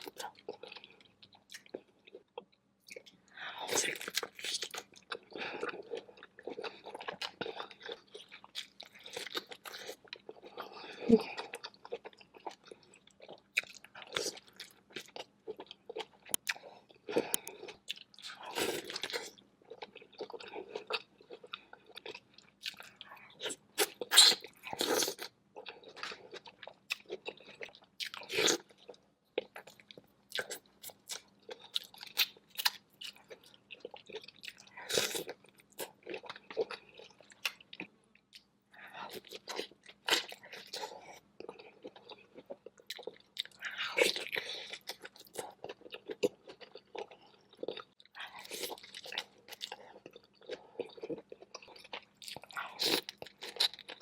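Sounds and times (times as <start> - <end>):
person chewing and biting food: 13.6 - 28.7, 39.1 - 54.0.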